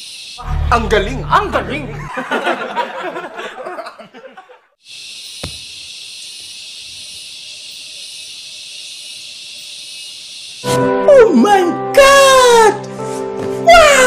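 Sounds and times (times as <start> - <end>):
high-pitched forest hiss: 0.0 - 0.5, 4.8 - 10.9
men laughing and talking: 1.4 - 4.7.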